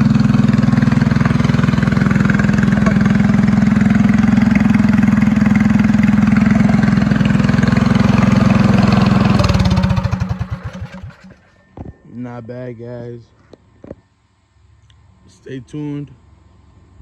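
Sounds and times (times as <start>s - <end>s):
minibike engine idling: 0.0s - 11.5s.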